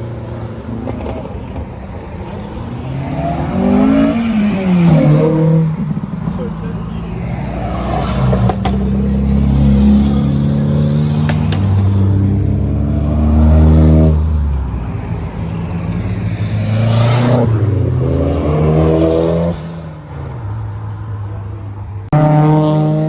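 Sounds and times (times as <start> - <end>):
car engine revving hard: 2.6 - 5.8.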